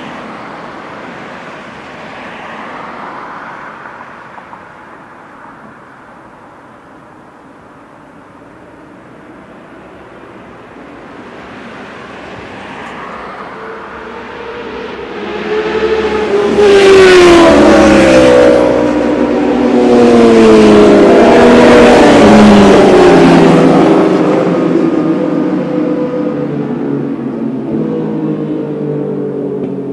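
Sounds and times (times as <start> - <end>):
motorcycle engine revving: 14.2 - 26.7.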